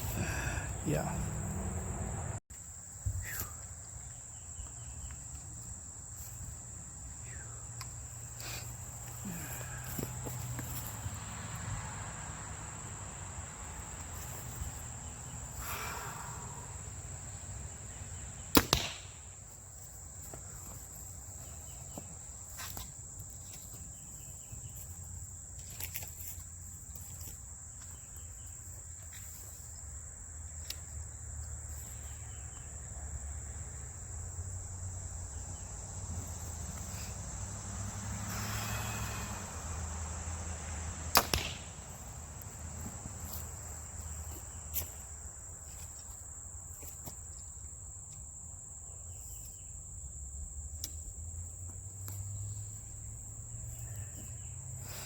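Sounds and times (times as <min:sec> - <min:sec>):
high insect trill: 0:00.0 - 0:55.0
arrow striking target: 0:18.5 - 0:19.2, 0:41.1 - 0:41.8
bowstring snap: 0:18.5 - 0:19.2, 0:41.1 - 0:41.8.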